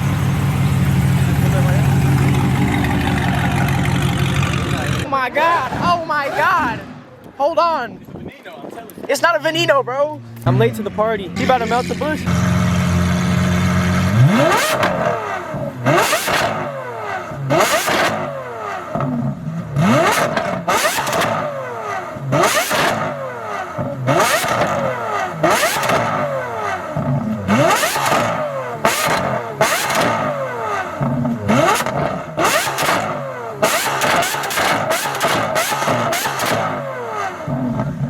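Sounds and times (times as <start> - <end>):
car engine revving hard: 0.0 - 7.0, 10.3 - 38.0
sharp exhaust crack: 11.4 - 38.0.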